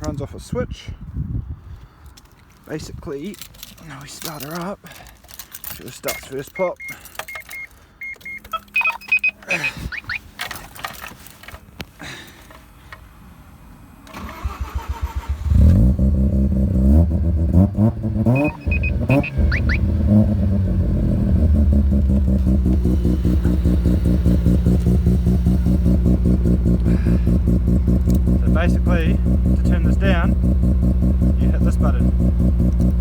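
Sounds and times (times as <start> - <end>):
rotary engine cranking and idling: 3.2 - 13.1, 14.0 - 33.0
electronic beeps and clicks: 6.1 - 10.2, 18.3 - 19.8.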